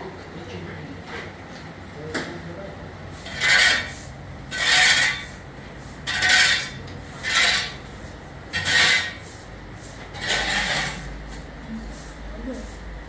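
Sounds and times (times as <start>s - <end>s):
rasping scraping strokes: 3.2s - 11.2s.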